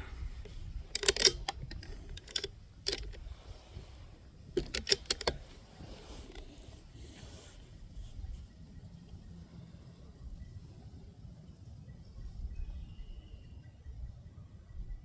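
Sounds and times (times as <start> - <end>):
rifle bolt clicking and rattling: 0.0 - 7.4.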